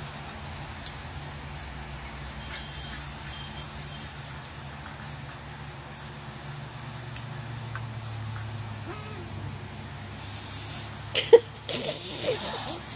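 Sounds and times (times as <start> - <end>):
hiss: 10.1 - 11.1, 11.7 - 12.9.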